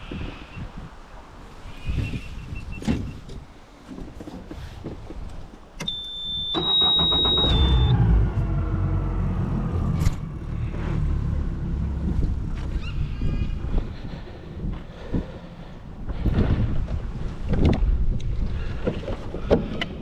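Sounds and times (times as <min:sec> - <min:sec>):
high-pitched warning beep: 0:05.9 - 0:07.9
outboard motor starting and running: 0:06.6 - 0:12.8.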